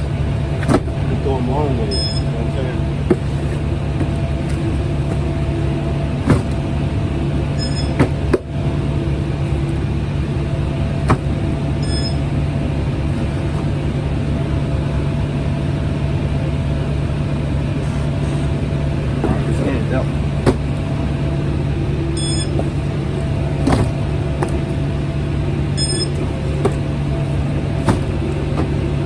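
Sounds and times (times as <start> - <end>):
knocks and clunks: 0.0 - 1.3, 3.0 - 14.0, 18.5 - 29.0
truck engine hum: 0.0 - 29.0.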